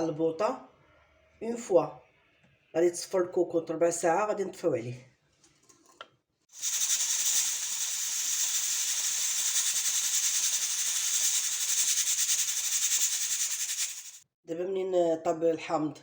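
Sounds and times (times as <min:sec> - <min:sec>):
pressure cooker valve hissing: 0:06.5 - 0:14.2.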